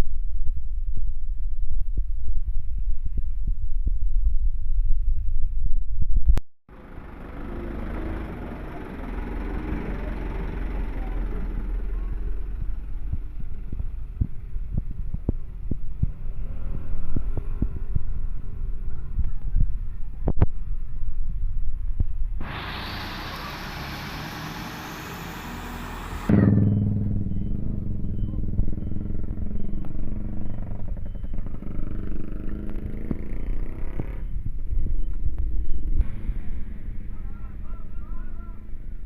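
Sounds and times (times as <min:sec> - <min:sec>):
truck engine passing: 0:06.7 - 0:19.1, 0:22.4 - 0:39.0.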